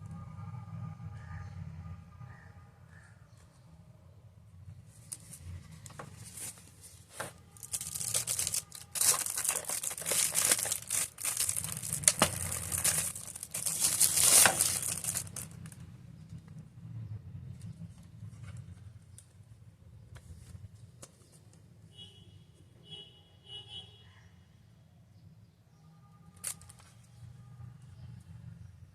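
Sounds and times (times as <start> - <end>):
packaging crinkling and tearing: 5.0 - 15.8, 26.4 - 26.9.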